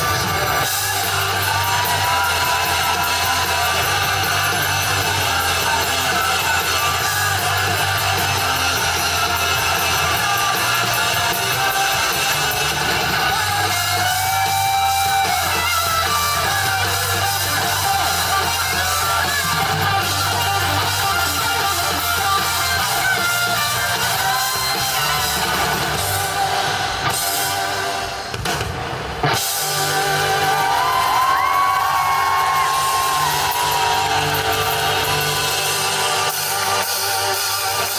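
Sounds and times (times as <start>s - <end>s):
person singing: 0.0s - 28.1s
rock band playing: 0.0s - 37.9s.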